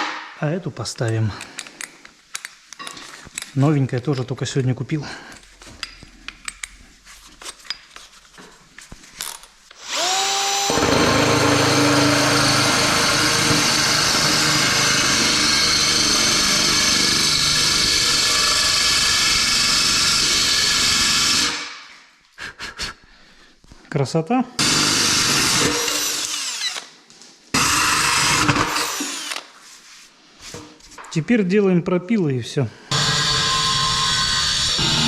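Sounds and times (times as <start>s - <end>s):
power tool whine: 9.8s - 21.7s, 24.6s - 26.9s, 27.6s - 29.4s, 32.9s - 35.0s.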